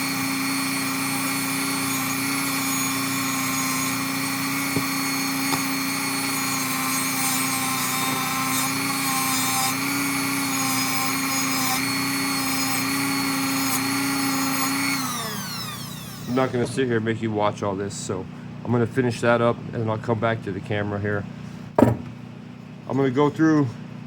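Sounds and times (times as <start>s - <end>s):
rotary tool grinding metal: 0.0s - 16.7s.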